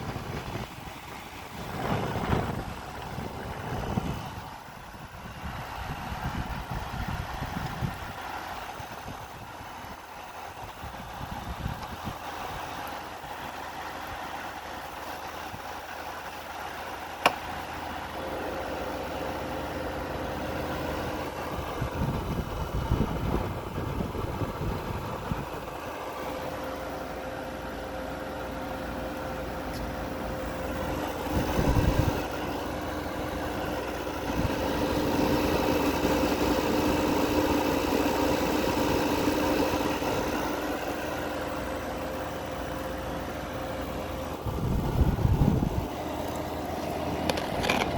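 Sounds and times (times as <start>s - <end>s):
air conditioner air rush: 0.0s - 8.2s, 17.2s - 47.9s
low rumbles: 0.0s - 13.4s, 29.7s - 47.9s.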